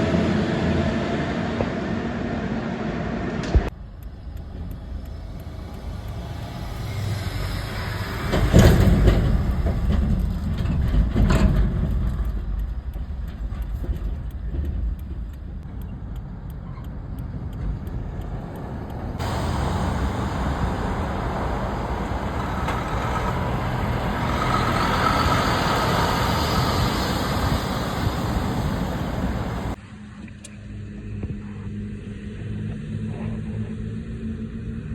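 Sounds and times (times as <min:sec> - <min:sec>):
highway traffic rushing: 0:03.7 - 0:12.7, 0:15.1 - 0:29.8.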